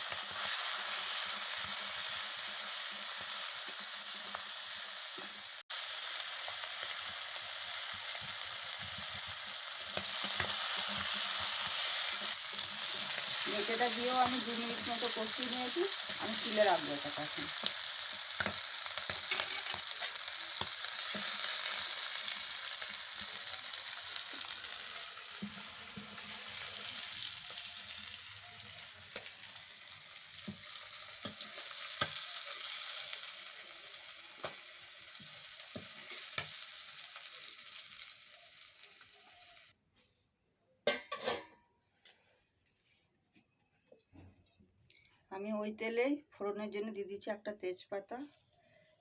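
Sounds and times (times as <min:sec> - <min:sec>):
liver sizzling in hot oil: 0:00.0 - 0:39.8
spatula tapping and scraping: 0:08.2 - 0:13.1, 0:18.4 - 0:21.4.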